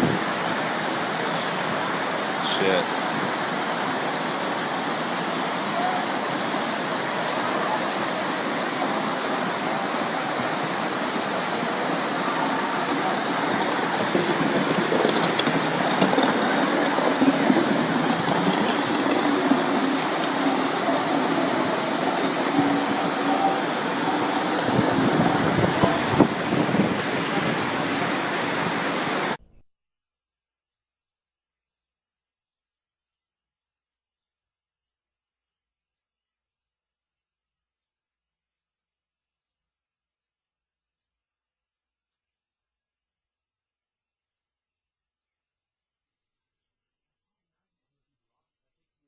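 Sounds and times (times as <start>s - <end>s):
rushing floodwater: 0.0s - 29.4s.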